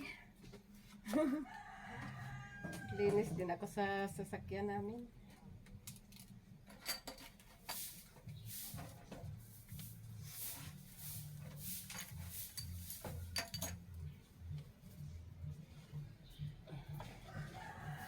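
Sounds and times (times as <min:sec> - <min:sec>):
wiping swishes: 0:07.7 - 0:13.3
light clicks and clinks: 0:11.8 - 0:13.8.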